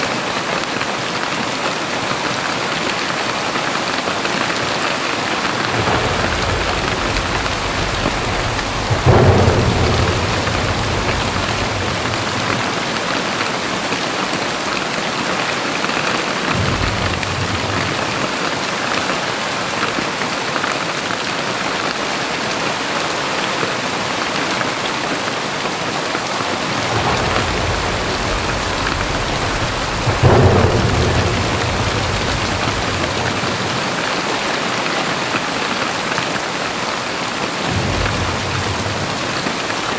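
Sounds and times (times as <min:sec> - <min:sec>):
heavy rain pouring: 0:00.0 - 0:39.9
thunder cracks: 0:04.4 - 0:14.8, 0:15.9 - 0:19.3, 0:26.0 - 0:35.4, 0:37.6 - 0:39.9
low thunder rumble: 0:04.8 - 0:13.9, 0:16.3 - 0:19.0, 0:26.2 - 0:34.8, 0:37.6 - 0:39.9.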